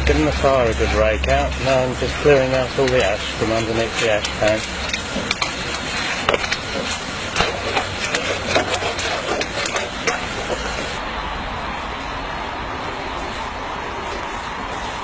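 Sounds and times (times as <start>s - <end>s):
steady hiss: 0.0s - 15.0s
metallic clicks knocks and scrapes: 0.1s - 11.0s.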